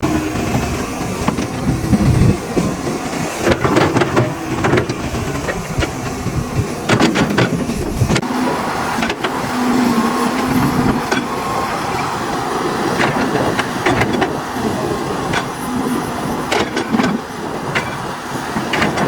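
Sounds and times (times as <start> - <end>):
diesel engine rumbling: 0.0 - 19.0
metallic clanks and knocks: 6.8 - 8.3.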